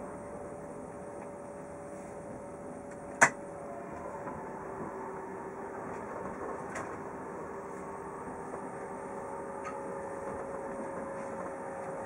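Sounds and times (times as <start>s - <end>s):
faint whining tones: 0.0s - 12.0s
train carriage rumble and hiss: 0.0s - 12.0s.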